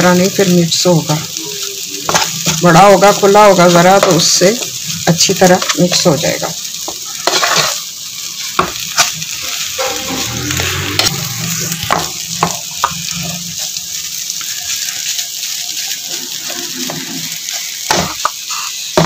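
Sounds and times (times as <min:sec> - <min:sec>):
food sizzling in a pan: 0:00.0 - 0:19.0
metal spatula scraping a pan: 0:07.1 - 0:07.9, 0:08.9 - 0:13.7, 0:16.1 - 0:19.0.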